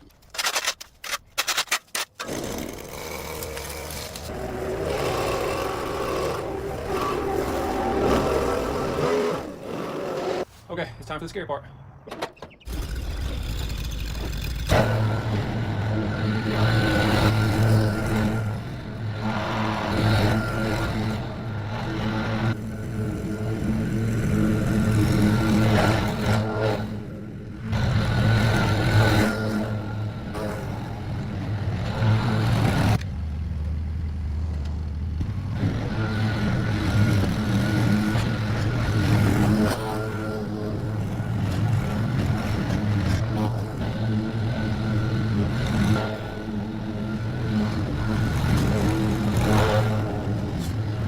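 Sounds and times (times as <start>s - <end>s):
small petrol engine running: 2.2s - 10.4s, 12.7s - 51.0s.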